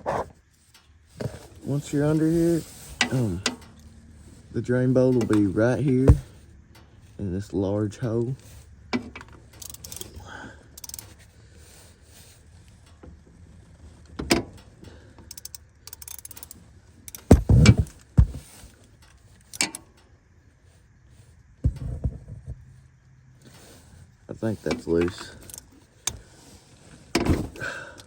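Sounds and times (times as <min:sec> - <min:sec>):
wrench clinking on metal bolt: 0:09.0 - 0:10.2, 0:10.8 - 0:11.1, 0:15.3 - 0:17.9, 0:19.5 - 0:19.9.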